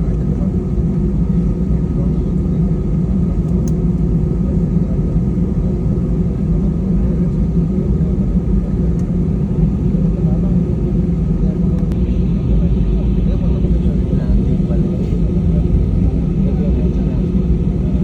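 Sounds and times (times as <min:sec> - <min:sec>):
jet engines rumbling on takeoff: 0:00.0 - 0:18.0.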